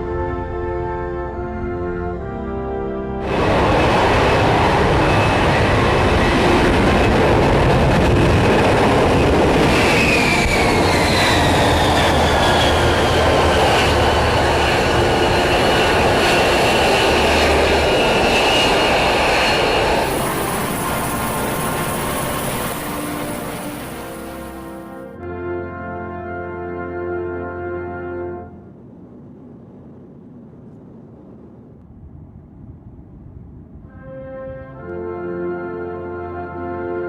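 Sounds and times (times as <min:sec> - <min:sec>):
high whine: 0:03.1 - 0:25.2
jet engine running: 0:03.1 - 0:25.2, 0:27.6 - 0:33.8.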